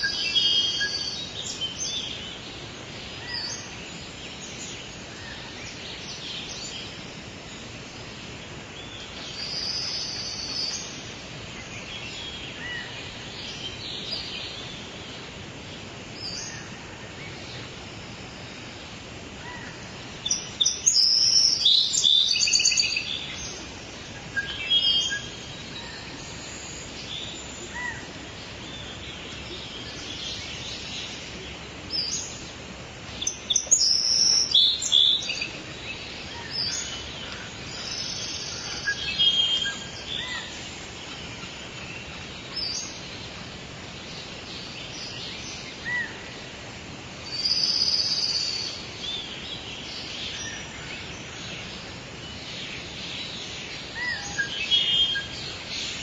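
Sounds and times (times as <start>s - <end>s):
outdoor background hiss: 0.0s - 56.0s
songbirds chirping: 0.0s - 56.0s.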